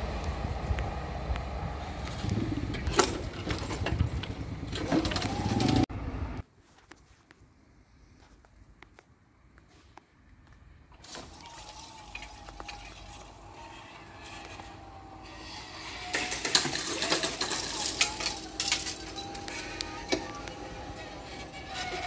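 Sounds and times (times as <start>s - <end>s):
wheel squeal: 2.3s - 5.9s, 11.1s - 22.0s
metallic clanks and clicks: 16.0s - 20.6s.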